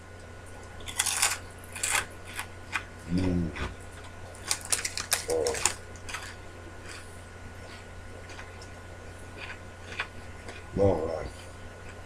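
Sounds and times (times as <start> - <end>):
crunchy snack chewing: 0.7 - 12.0
snack bag crinkling: 0.8 - 2.5, 3.9 - 7.1.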